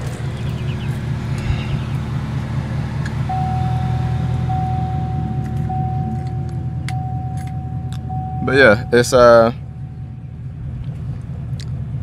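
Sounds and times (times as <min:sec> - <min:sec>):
car engine idling: 0:00.0 - 0:12.0
electronic warning chime: 0:03.3 - 0:09.4.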